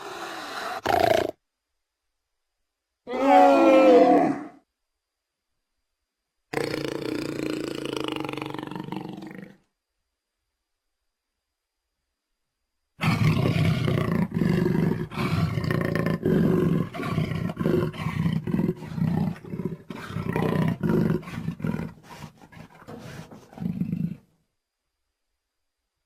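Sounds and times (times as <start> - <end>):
dinosaur roars and growls: 3.1 - 4.6, 13.0 - 24.2.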